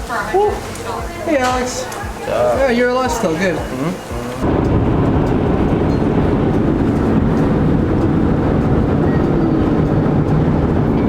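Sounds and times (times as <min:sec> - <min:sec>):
vehicle cabin road noise: 0:03.6 - 0:11.0.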